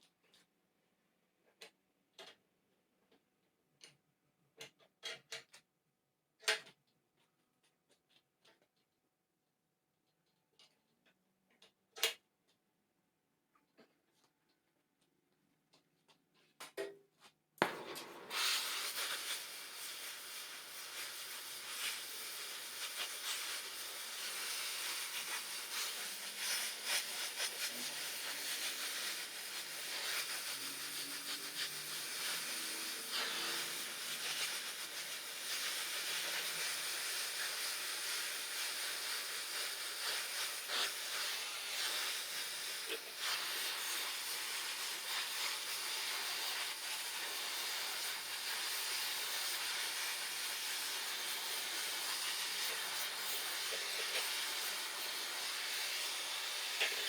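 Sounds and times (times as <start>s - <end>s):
welding hiss and crackling: 17.6s - 57.0s.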